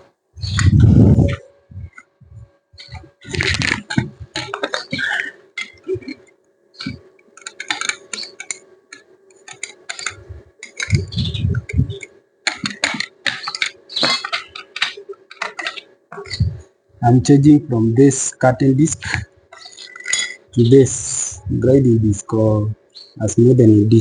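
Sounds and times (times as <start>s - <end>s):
metal tools clicking and clinking: 2.8s - 16.5s, 19.6s - 20.5s.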